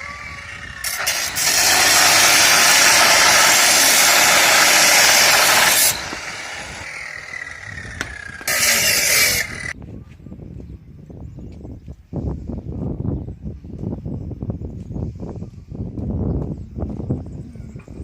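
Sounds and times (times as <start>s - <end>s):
workshop tool rushing noise: 0.0s - 9.8s.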